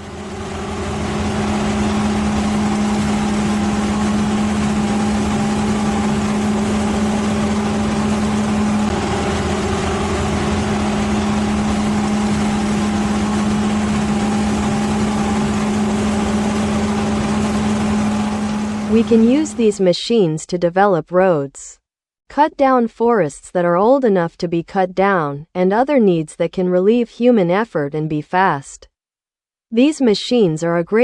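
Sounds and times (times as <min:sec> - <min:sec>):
machine engine humming: 0:00.0 - 0:19.8.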